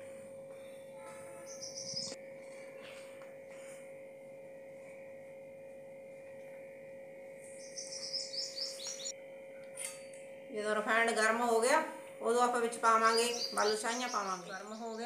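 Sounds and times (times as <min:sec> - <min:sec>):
steady low hum: 0:00.0 - 0:15.0
bird chirping: 0:01.4 - 0:02.2, 0:07.6 - 0:09.1, 0:13.0 - 0:15.0.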